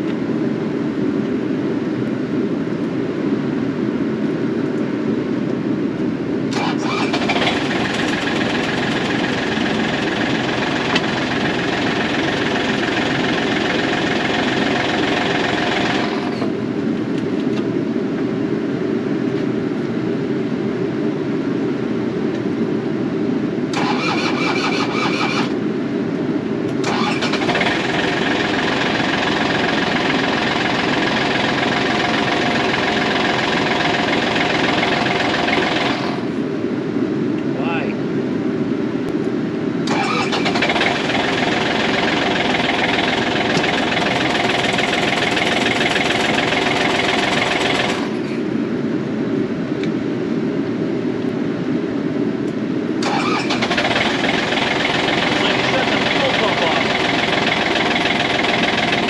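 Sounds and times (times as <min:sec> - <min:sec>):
higher engine whine: 0:00.0 - 0:59.0
excavator diesel engine running: 0:06.5 - 0:16.6, 0:23.7 - 0:25.6, 0:26.7 - 0:36.4, 0:39.8 - 0:48.5, 0:53.0 - 0:59.0.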